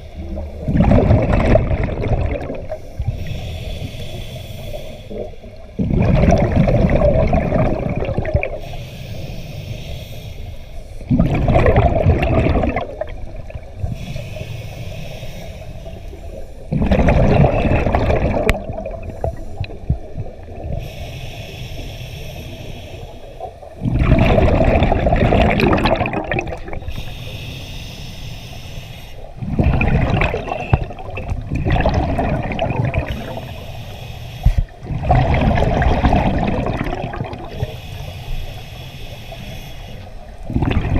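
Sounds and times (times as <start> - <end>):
exhaled bubbles underwater: 0.0 - 8.8, 11.0 - 14.5, 15.5 - 21.1, 22.6 - 27.2, 29.2 - 33.7, 34.5 - 37.9, 40.0 - 40.9
regulator inhale hiss: 2.7 - 5.7, 8.5 - 11.1, 13.7 - 16.7, 19.0 - 20.0, 20.6 - 23.8, 26.7 - 29.4, 33.0 - 34.8, 37.5 - 40.4.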